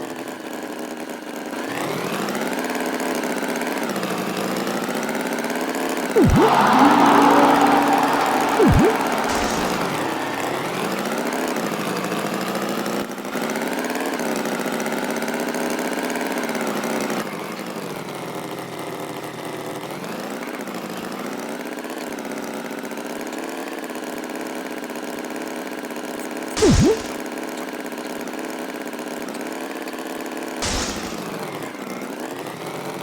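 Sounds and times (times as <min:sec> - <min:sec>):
cartoon whistle sound effect: 0:06.2 - 0:10.4, 0:26.6 - 0:27.2, 0:30.6 - 0:31.2
cartoon tractor engine: 0:06.2 - 0:10.8, 0:26.6 - 0:27.2, 0:30.6 - 0:31.2.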